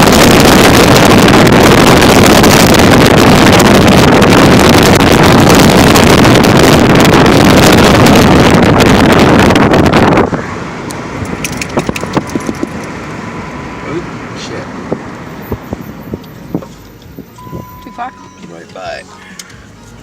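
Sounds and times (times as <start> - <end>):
strong wind on microphone: 0.0 - 12.9.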